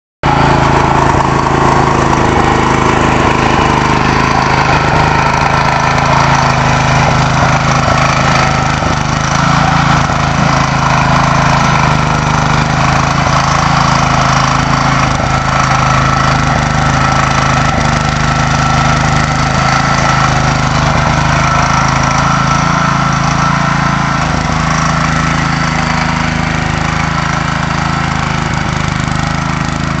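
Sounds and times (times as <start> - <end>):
skid steer engine running steadily: 0.2 - 30.0.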